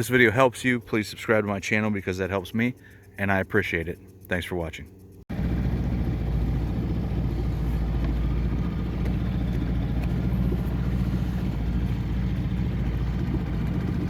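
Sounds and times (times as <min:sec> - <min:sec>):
engine idling: 0:05.0 - 0:14.0.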